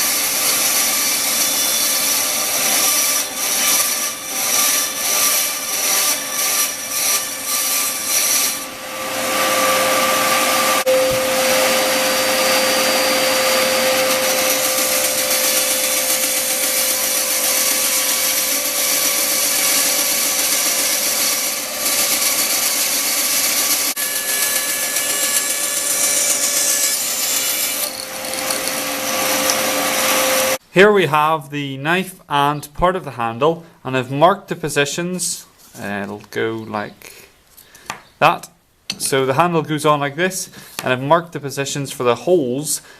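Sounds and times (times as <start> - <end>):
hand saw on wood: 0.0 - 8.7, 9.3 - 30.6
power tool running on wood: 0.0 - 30.6.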